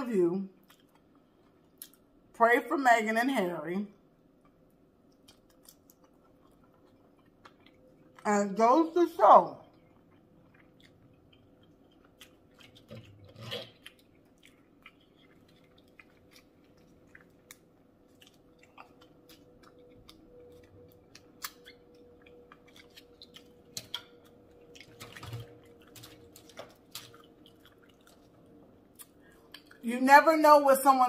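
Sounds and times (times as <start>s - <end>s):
faint hum: 0.0s - 31.0s
close chewing: 5.1s - 8.3s, 9.6s - 29.8s.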